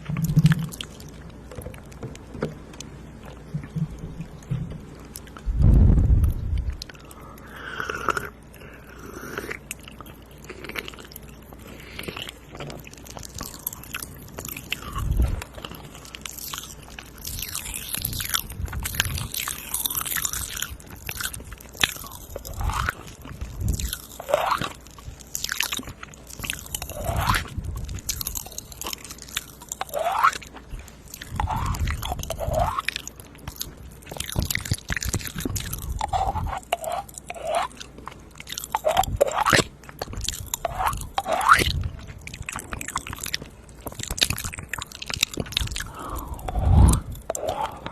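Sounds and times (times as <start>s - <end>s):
wet mouth clicks and smacks: 16.1s - 47.9s.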